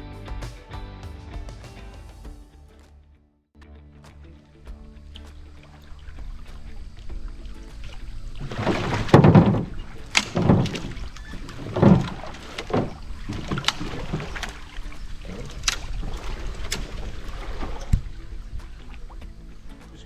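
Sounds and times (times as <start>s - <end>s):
paddle strokes swishing water: 4.6s - 20.0s
paddle knocking against hull: 6.1s - 19.9s.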